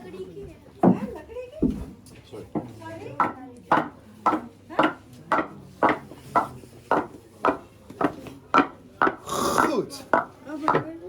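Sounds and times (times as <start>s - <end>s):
wooden clog footsteps on hard floor: 3.7s - 10.9s.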